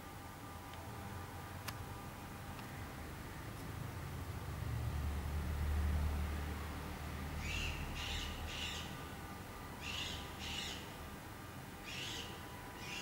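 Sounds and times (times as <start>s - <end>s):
bird harsh calls: 7.4s - 9.0s, 9.8s - 10.9s, 11.9s - 13.0s.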